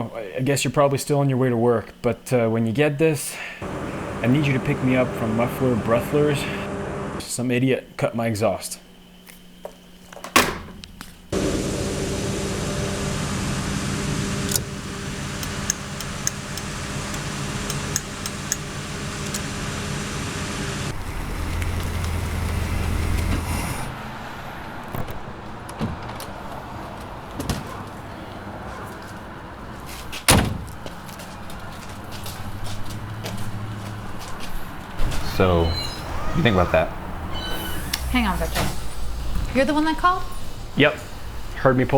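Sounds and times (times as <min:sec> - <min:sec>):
loud raw car engine drone: 0:03.6 - 0:07.2, 0:11.3 - 0:24.2.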